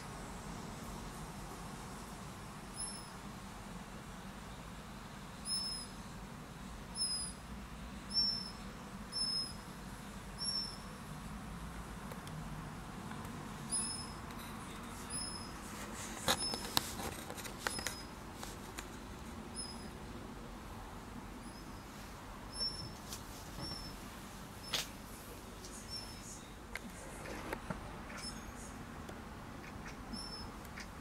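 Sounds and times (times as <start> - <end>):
steady background hiss: 0.0 - 31.0
small bird chirping: 5.4 - 6.1, 6.9 - 7.4, 8.0 - 9.7, 10.4 - 11.0, 13.7 - 14.3, 15.0 - 15.6, 19.5 - 20.0, 22.5 - 23.0, 25.8 - 26.5, 28.1 - 28.8, 29.6 - 31.0.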